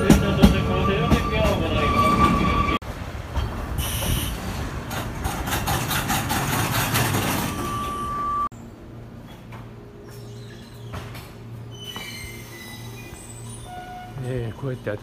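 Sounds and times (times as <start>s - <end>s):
train running rattle: 0.0s - 8.1s.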